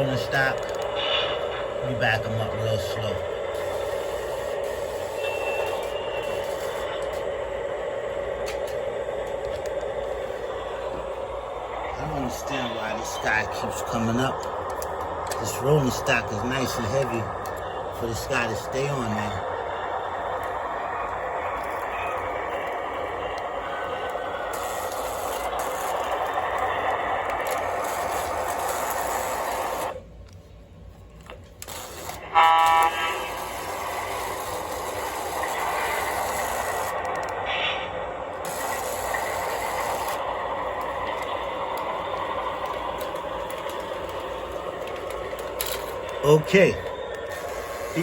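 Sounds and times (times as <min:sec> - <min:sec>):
model train running on track: 0:00.0 - 0:48.0
model locomotive horn: 0:32.1 - 0:34.2.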